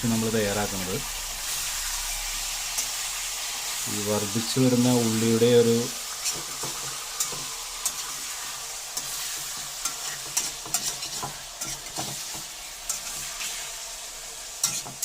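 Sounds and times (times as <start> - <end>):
chicken sizzling in oil: 0.0 - 15.0
spoon stirring in a pan: 6.0 - 13.7, 14.6 - 15.0.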